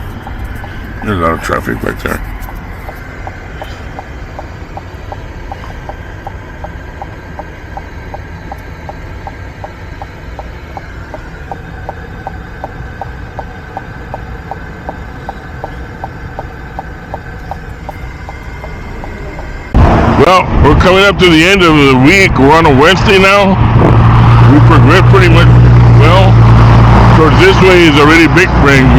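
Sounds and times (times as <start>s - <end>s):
indicator flasher ticking: 0.0s - 19.8s
truck engine rumble: 0.0s - 28.9s.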